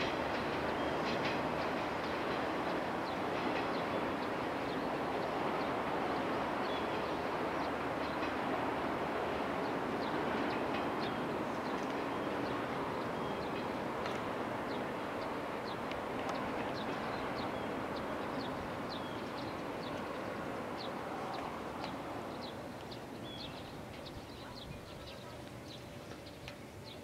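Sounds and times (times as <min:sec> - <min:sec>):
electric train rumbling: 0:00.0 - 0:27.0
small birds chirping: 0:14.7 - 0:27.0.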